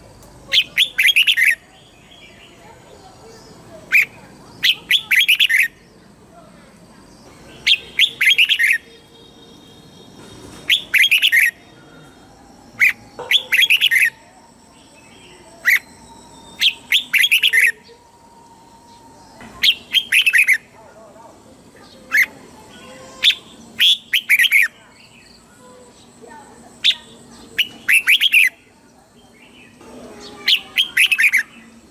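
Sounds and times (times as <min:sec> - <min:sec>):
bird singing sharp whistled notes: 0:07.6 - 0:08.9, 0:10.6 - 0:18.0, 0:18.7 - 0:20.6, 0:23.2 - 0:25.4, 0:26.8 - 0:28.5.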